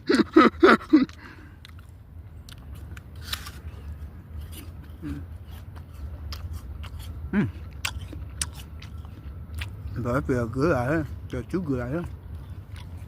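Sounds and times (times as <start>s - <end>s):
person chewing crunchy food: 0.9s - 13.0s.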